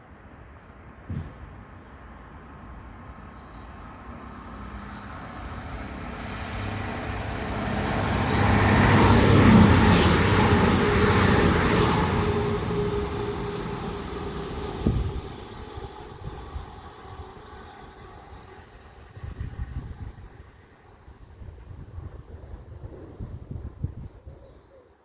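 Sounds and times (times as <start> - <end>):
train passing at speed: 0.0 - 24.2
short sharp knock: 1.1 - 1.5.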